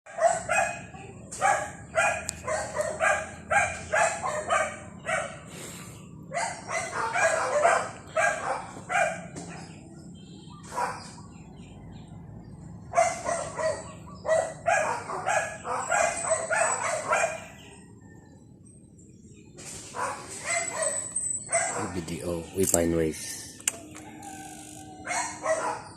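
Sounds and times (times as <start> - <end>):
dog barking: 0.1 - 5.5, 6.3 - 9.8, 10.6 - 11.2, 12.8 - 17.7, 19.9 - 22.0, 25.0 - 25.9.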